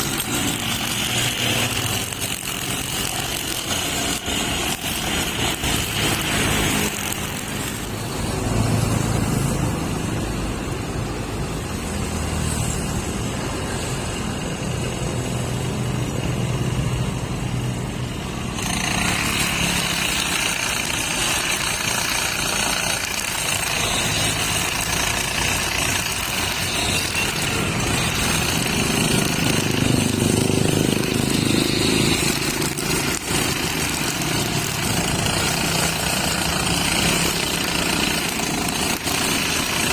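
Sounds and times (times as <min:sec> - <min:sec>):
brush cutter engine running: 0:00.0 - 0:08.4, 0:18.4 - 0:39.9.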